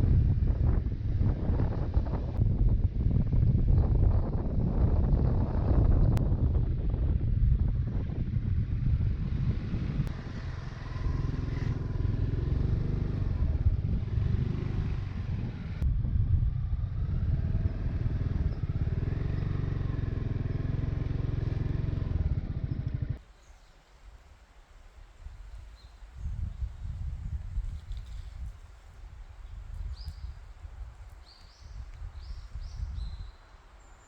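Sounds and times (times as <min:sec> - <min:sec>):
scooter engine running: 0:08.5 - 0:15.8, 0:16.8 - 0:23.2.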